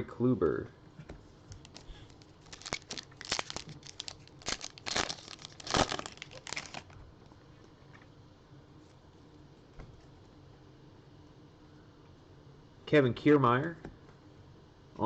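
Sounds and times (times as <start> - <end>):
plastic wrapper crinkling: 1.5 - 7.0.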